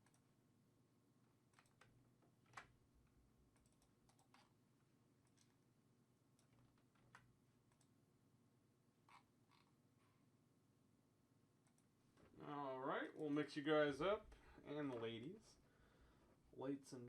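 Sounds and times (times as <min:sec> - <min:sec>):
computer clicks: 0:01.5 - 0:02.8, 0:03.5 - 0:04.6, 0:05.2 - 0:05.6, 0:11.6 - 0:11.9.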